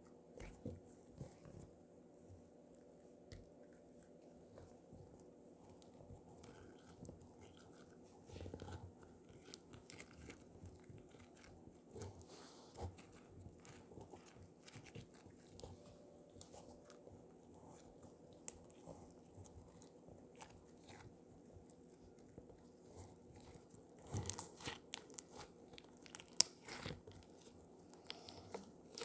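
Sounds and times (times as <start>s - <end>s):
slime squished by hand: 23.1s - 29.0s
sticky clicks and crackling pops: 23.4s - 29.0s.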